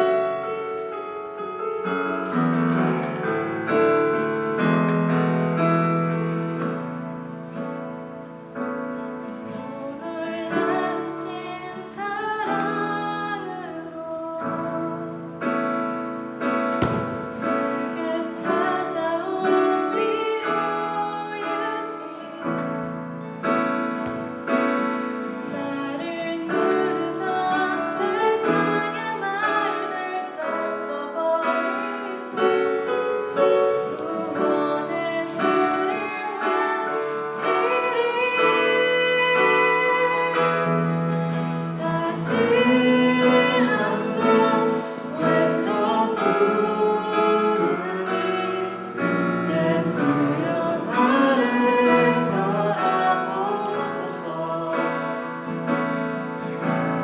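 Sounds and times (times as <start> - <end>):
piano accompaniment: 0.0 - 57.0
voices singing: 41.7 - 55.4.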